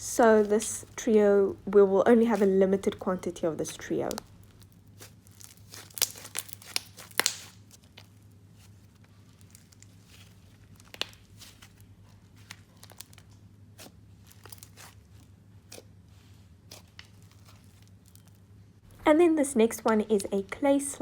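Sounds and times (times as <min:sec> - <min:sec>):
slime crackling and popping: 0:00.3 - 0:15.9, 0:16.6 - 0:18.4.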